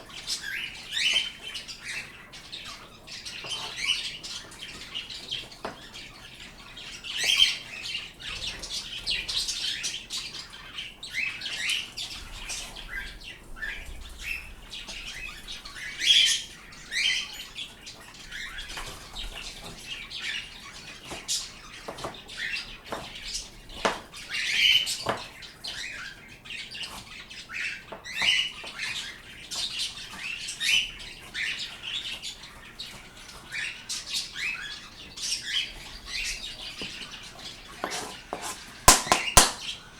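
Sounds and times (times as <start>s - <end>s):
birds chirping and squawking: 0.0s - 39.9s
sharp clicks and taps: 37.8s - 39.7s.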